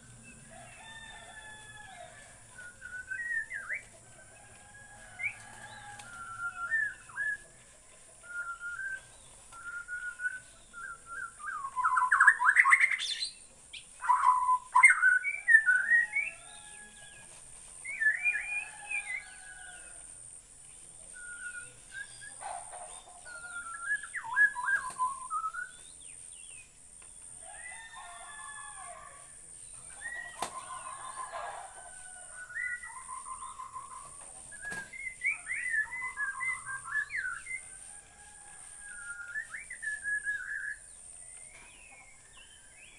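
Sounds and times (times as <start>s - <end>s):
high-pitched hiss: 0.0s - 42.9s
bird singing whistled phrases: 2.6s - 3.8s, 8.2s - 13.4s, 21.2s - 22.4s, 23.3s - 25.9s, 32.3s - 37.6s, 38.9s - 40.8s.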